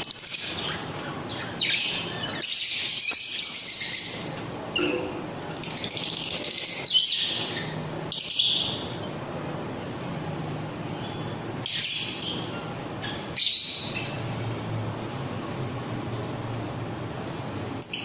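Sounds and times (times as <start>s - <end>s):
parrots chirping and screeching: 0.0s - 9.2s, 10.9s - 14.4s, 17.8s - 18.0s.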